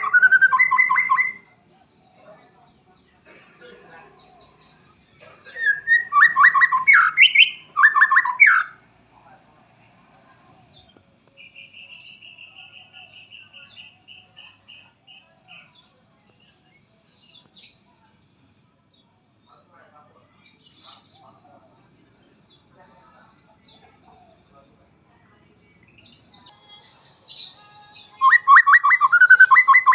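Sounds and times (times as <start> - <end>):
bird singing sweeping notes: 0.0 - 1.9, 5.5 - 8.9, 26.0 - 29.9.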